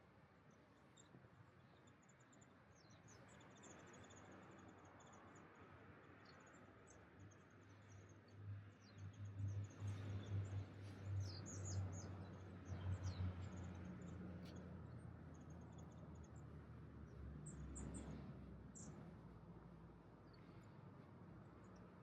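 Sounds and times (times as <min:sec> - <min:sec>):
small birds chirping: 0:06.2 - 0:19.1.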